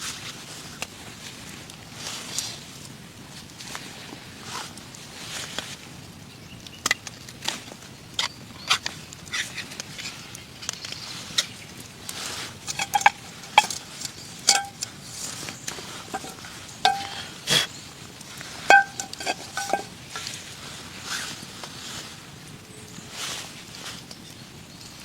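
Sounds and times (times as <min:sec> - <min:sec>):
utensil clinking on metal pot: 0:12.6 - 0:17.3, 0:18.7 - 0:20.1.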